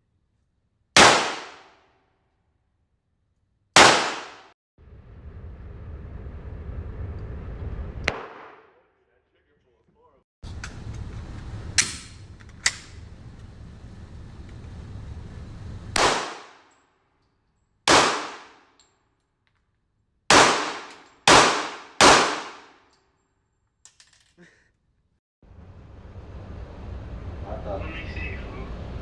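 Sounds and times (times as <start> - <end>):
gunshots with ringing tail: 1.0 - 1.7, 3.8 - 4.5, 8.1 - 8.8, 16.0 - 16.6, 17.9 - 18.6, 20.3 - 22.7.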